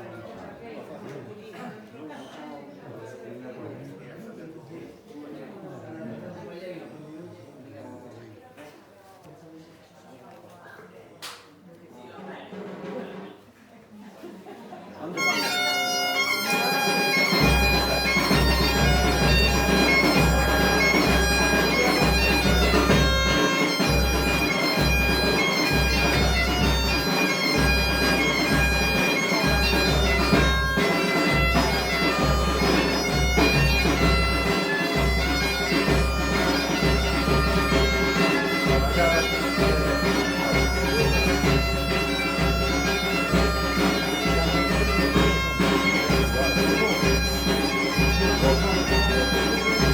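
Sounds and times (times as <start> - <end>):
bagpipe playing lively tune: 15.2 - 49.9
drum beating: 15.2 - 49.9.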